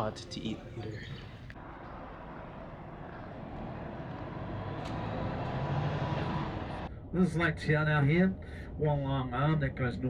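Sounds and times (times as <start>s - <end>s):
bus engine and road noise: 0.0s - 7.0s.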